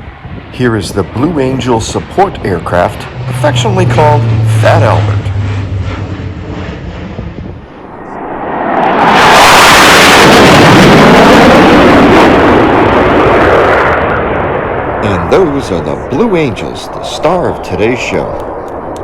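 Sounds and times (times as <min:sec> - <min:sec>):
military aircraft roar: 0:00.0 - 0:19.0.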